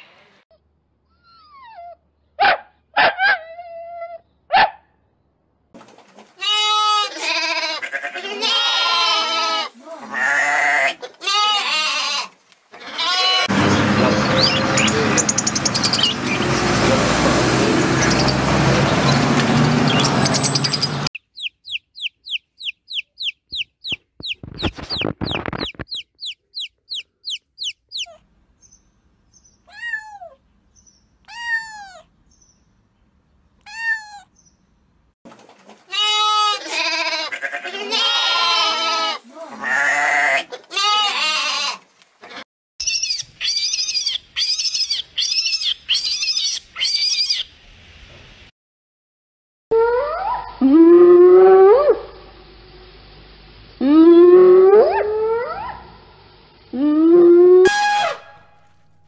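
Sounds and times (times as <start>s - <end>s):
loud bleating: 6.4s - 13.5s, 35.9s - 42.4s
finches chirping: 19.9s - 28.8s
kitten mewing: 29.7s - 30.4s, 31.2s - 32.1s, 33.6s - 34.3s.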